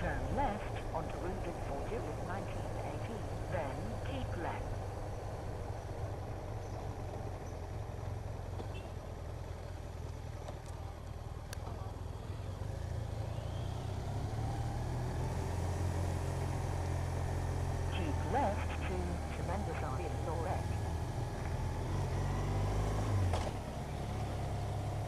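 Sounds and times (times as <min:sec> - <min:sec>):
motorcycle engine drone: 0:00.0 - 0:25.0.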